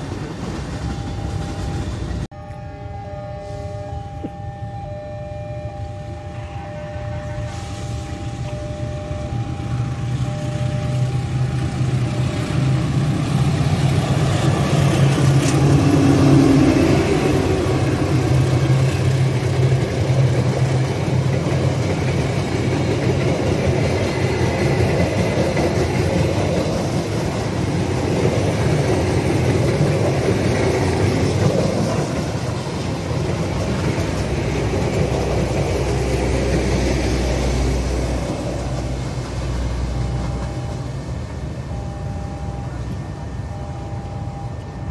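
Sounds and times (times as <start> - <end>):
train wheels rumbling on rail: 0.0 - 2.6, 5.9 - 44.9
locomotive engine hum: 5.6 - 44.9.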